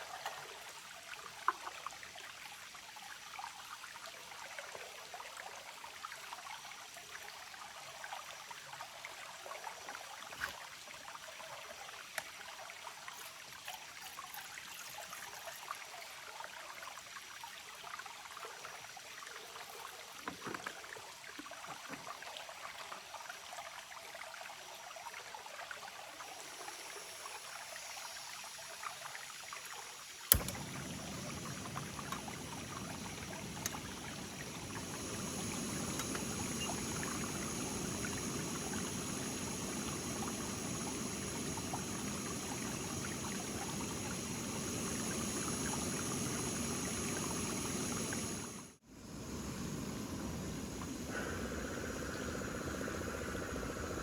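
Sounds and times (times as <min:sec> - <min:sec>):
sharp click: 0:30.3 - 0:34.2
flowing water rushing: 0:30.3 - 0:54.0.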